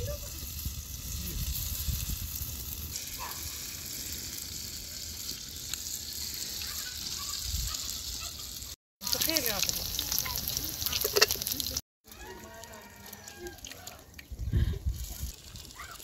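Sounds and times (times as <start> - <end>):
potato patties sizzling in oil: 0.0 - 11.8.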